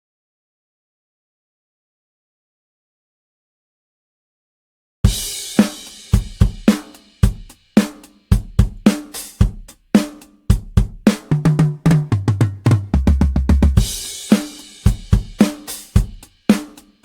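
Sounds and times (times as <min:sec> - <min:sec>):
drum kit groove: 0:05.1 - 0:17.0
tom fill: 0:05.1 - 0:17.0
crash cymbal: 0:13.8 - 0:17.0.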